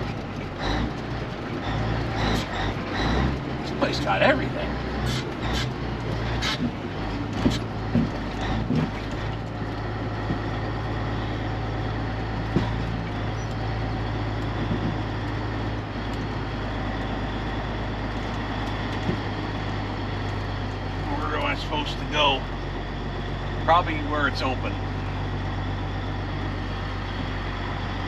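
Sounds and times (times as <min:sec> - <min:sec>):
truck engine low hum: 0:00.0 - 0:28.0
knocks and rattles: 0:05.0 - 0:10.8, 0:12.3 - 0:13.6, 0:14.4 - 0:16.4.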